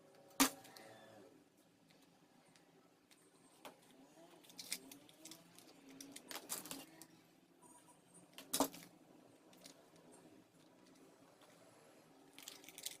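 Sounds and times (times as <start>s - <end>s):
small objects clicking and rustling: 4.3s - 7.1s, 12.3s - 13.0s.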